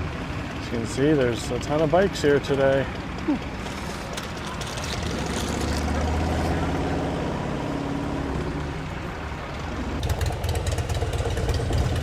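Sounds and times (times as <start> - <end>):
motorcycle engines running: 0.0 - 12.0
motorcycle exhaust pulses: 9.5 - 12.0.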